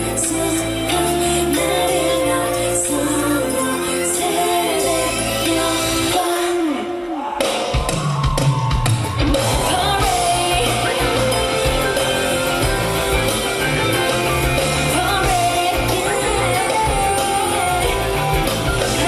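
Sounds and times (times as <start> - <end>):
woman singing: 0.0 - 7.2, 9.2 - 13.4, 14.8 - 19.0
pop-rock band playing: 0.0 - 19.0.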